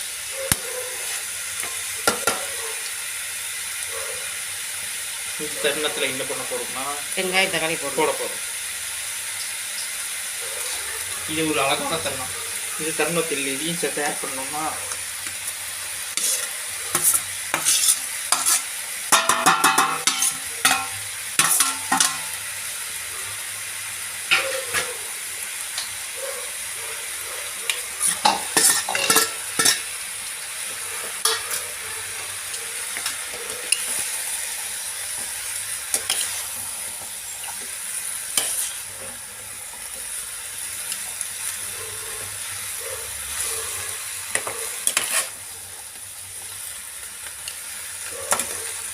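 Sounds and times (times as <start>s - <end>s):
food sizzling in a pan: 0.0s - 48.9s
spoon scraping a pan: 14.9s - 22.4s, 24.3s - 25.0s, 27.7s - 30.0s, 30.6s - 39.3s, 43.3s - 45.5s, 48.3s - 48.7s.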